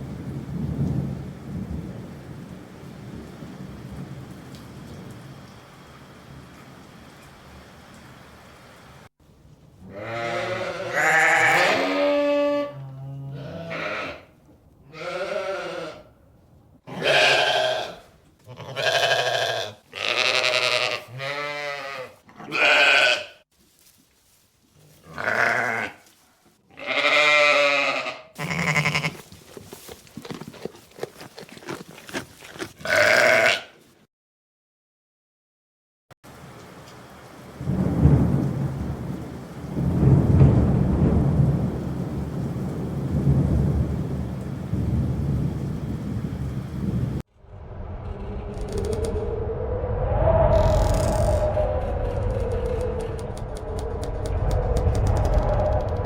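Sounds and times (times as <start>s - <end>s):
livestock bleating: 9.9s - 14.3s, 14.9s - 16.1s, 16.9s - 23.4s, 25.0s - 26.0s, 26.7s - 29.3s, 32.8s - 33.8s.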